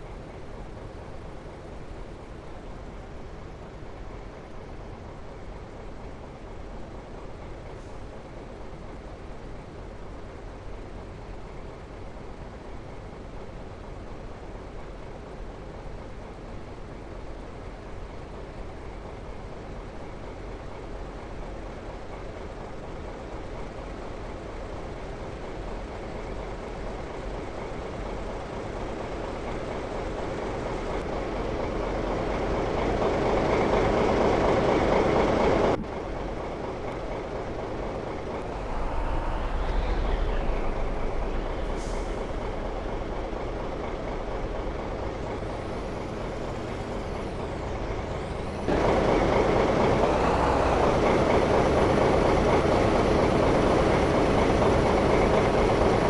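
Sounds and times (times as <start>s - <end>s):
large engine running: 18.0s - 56.0s.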